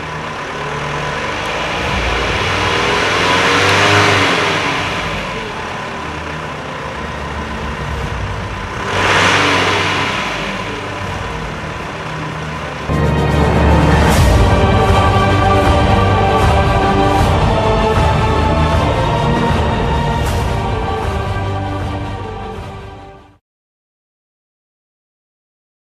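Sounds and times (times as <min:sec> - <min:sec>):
diesel engine revving: 0:00.0 - 0:23.4.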